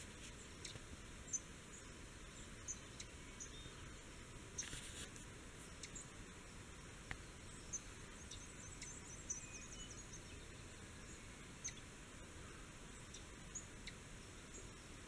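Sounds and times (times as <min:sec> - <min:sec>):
low background hiss: 0:00.0 - 0:15.0.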